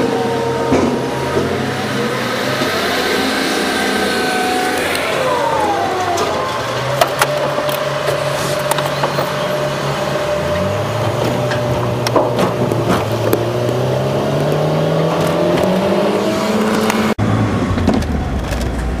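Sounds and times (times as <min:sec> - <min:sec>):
car engine accelerating: 0:00.0 - 0:19.0
car knocks and jolts: 0:11.0 - 0:15.9.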